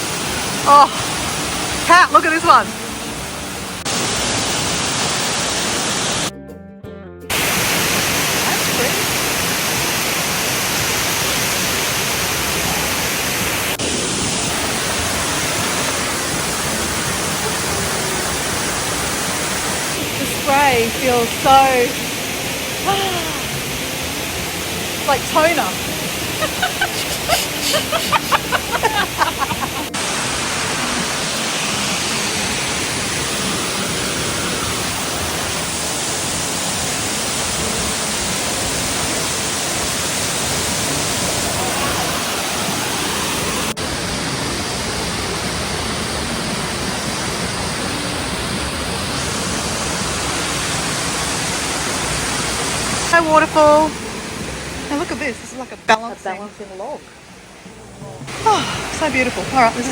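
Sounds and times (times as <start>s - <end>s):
waterfall rushing: 0.0s - 6.3s, 7.3s - 59.9s
person speaking: 26.4s - 30.0s.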